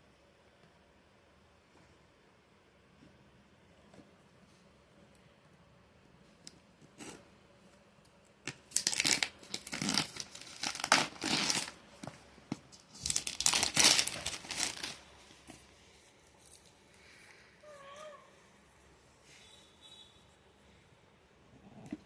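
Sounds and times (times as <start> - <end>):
packaging tearing: 8.4 - 11.8, 12.8 - 15.1.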